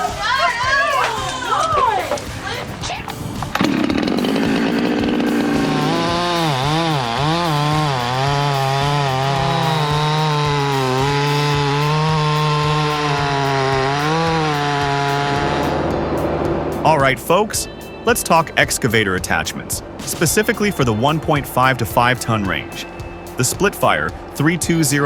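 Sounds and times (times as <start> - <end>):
chainsaw cutting at high revs: 3.1 - 16.8.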